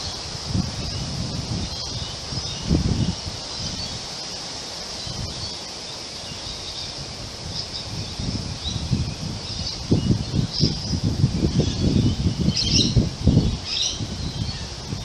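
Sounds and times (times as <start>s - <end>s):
wind rumbling on microphone: 0.0s - 15.0s
wind rustling tree leaves: 0.0s - 15.0s.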